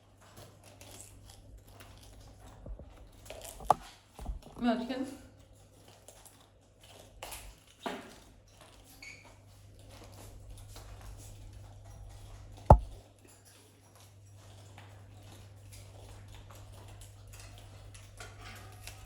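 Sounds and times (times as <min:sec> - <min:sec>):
parrots crunching carrots: 0:00.2 - 0:04.6, 0:05.5 - 0:11.8, 0:14.5 - 0:19.0
sharp knock: 0:12.7 - 0:13.0.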